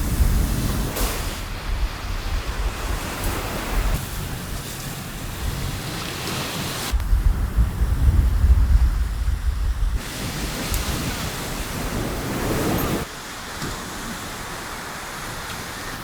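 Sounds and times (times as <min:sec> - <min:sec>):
wind rumble on microphone: 0:00.0 - 0:13.1
steady rain: 0:00.0 - 0:16.0.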